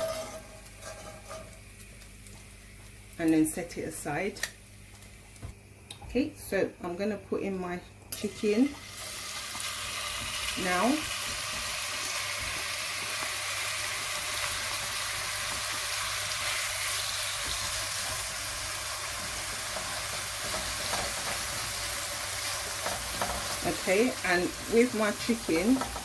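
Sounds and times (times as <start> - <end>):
chicken sizzling in hot oil: 8.2 - 26.0.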